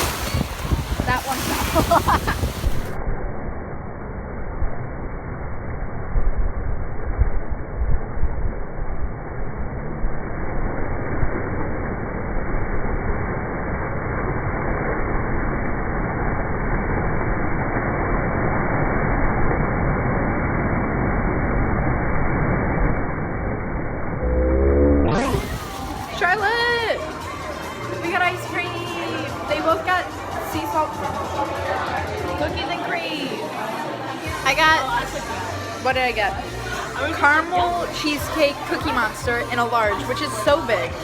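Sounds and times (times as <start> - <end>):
wind buffeting microphone: 0.0 - 3.0.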